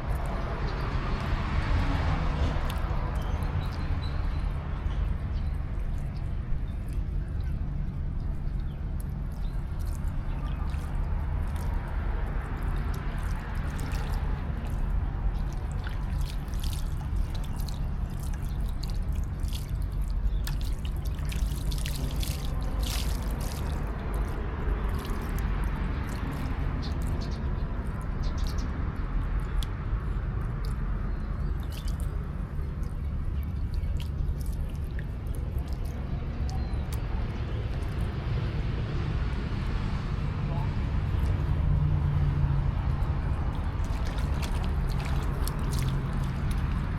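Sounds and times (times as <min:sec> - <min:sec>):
monkeys splashing in water: 0:09.1 - 0:28.6, 0:30.6 - 0:38.6, 0:43.2 - 0:46.9.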